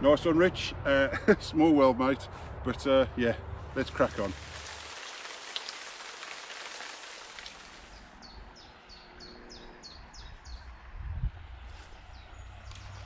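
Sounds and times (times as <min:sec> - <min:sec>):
songbird singing: 0:06.6 - 0:10.9, 0:11.8 - 0:13.0.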